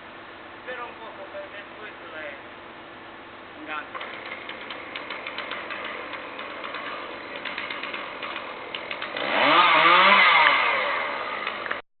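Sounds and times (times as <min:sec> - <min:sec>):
chainsaw idling and revving: 0:03.9 - 0:11.8.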